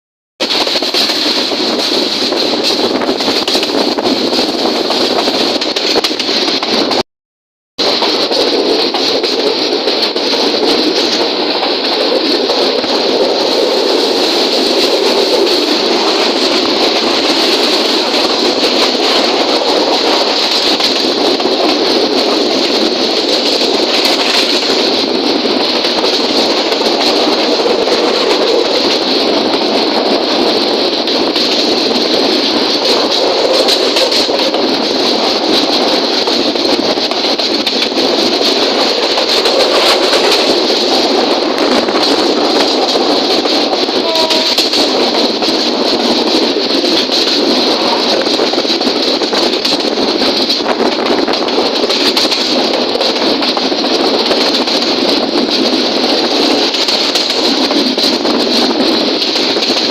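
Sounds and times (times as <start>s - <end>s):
train wheels on rails: 0.4s - 7.0s, 7.8s - 59.9s.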